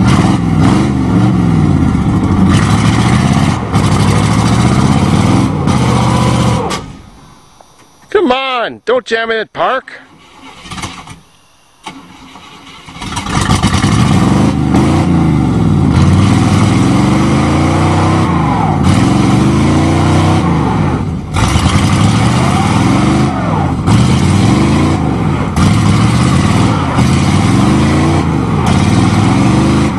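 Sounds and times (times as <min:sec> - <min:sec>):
pickup engine revving: 0:00.0 - 0:07.2, 0:10.1 - 0:29.9.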